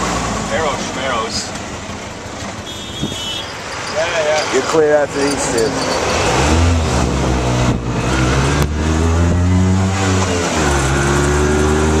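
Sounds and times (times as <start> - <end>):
car engine accelerating: 3.7 - 12.0.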